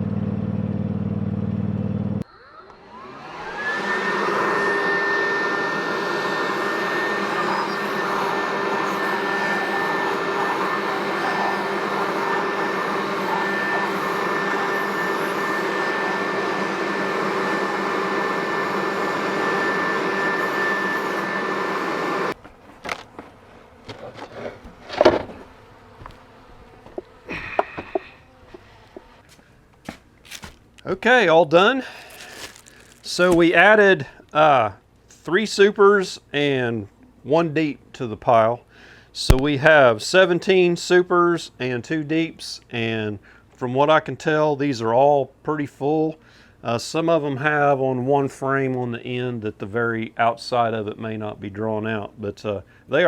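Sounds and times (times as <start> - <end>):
leaf blower whining: 2.2 - 29.5, 31.7 - 34.2.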